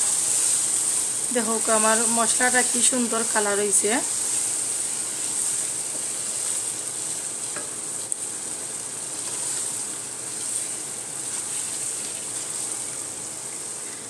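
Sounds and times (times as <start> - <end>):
chicken sizzling in a pot: 0.0 - 14.0
wooden spatula stirring scrape: 9.2 - 12.8.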